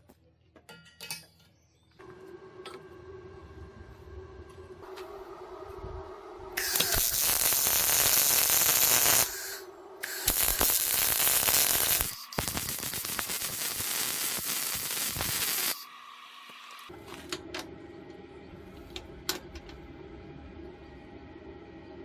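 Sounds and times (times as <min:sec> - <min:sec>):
electric welding arc crackling: 0:06.6 - 0:15.9.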